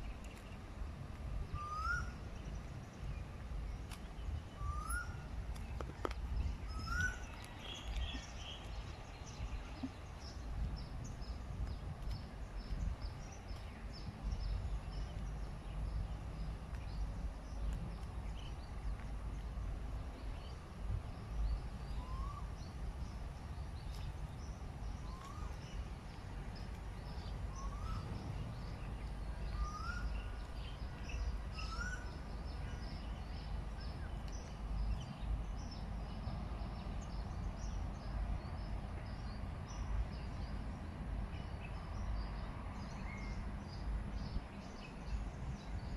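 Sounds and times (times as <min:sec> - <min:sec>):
rising bird call: 0:01.6 - 0:02.2, 0:04.6 - 0:05.2
birds chirping: 0:01.6 - 0:40.6.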